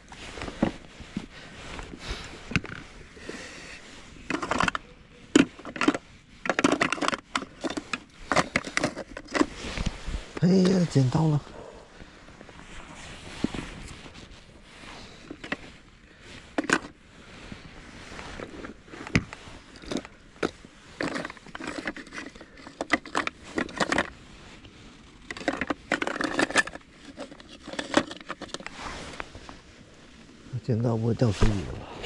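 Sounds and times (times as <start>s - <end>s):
scraping and rustling: 0.0s - 30.5s
sharp handling clicks and knocks: 4.2s - 10.8s, 16.4s - 17.0s, 18.3s - 24.1s, 25.2s - 29.3s.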